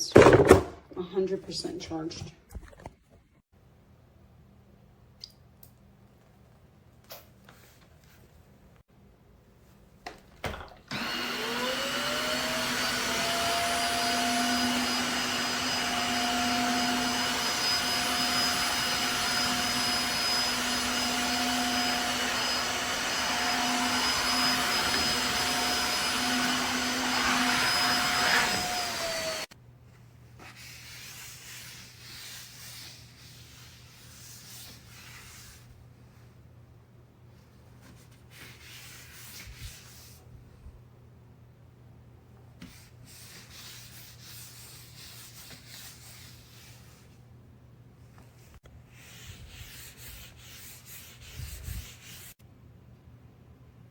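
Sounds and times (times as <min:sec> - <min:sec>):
vacuum mop motor whine: 0:10.6 - 0:29.5
rubbing and handling sounds: 0:13.8 - 0:36.6, 0:37.2 - 0:40.7, 0:42.4 - 0:52.4.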